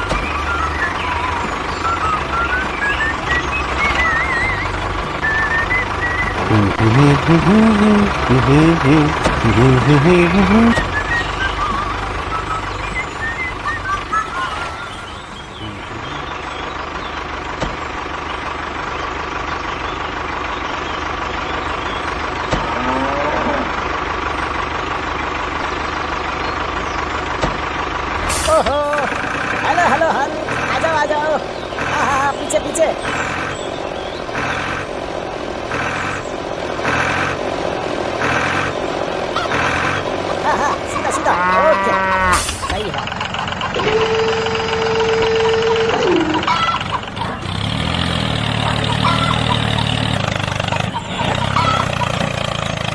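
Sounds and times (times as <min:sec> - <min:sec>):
tractor engine running: 0:00.0 - 0:52.9.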